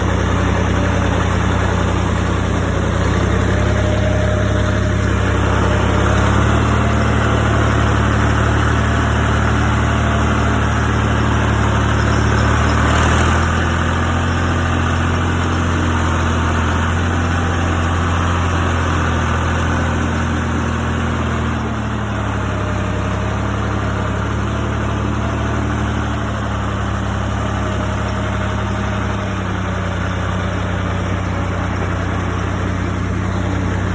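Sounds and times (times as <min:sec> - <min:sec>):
tractor engine idling: 0:00.0 - 0:33.9.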